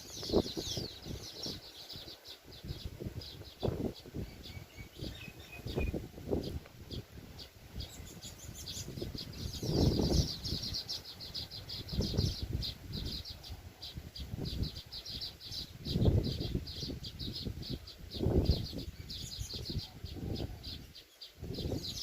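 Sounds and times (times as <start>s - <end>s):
weaver birds chattering: 0.0s - 22.0s.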